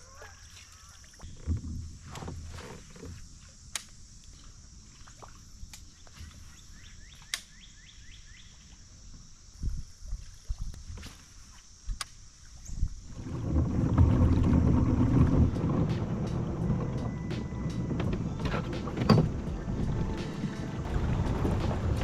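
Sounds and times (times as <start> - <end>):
low thumps and knocks: 13.2 - 22.0.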